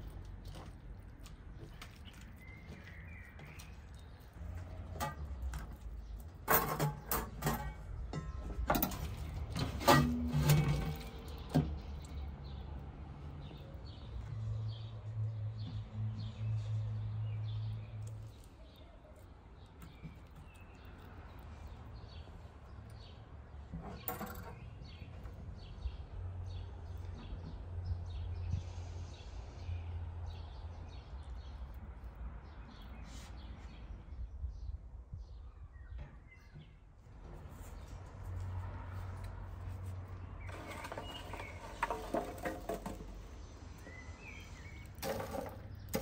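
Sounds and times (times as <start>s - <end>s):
small birds chirping: 0.0s - 6.5s, 10.7s - 46.0s.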